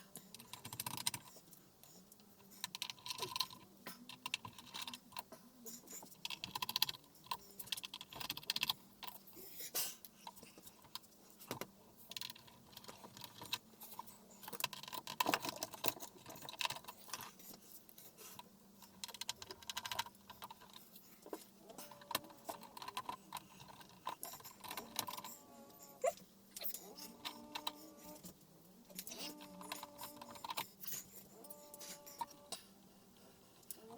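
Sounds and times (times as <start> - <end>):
small hard parts clicking and clattering: 0.1 - 9.4, 10.0 - 32.7.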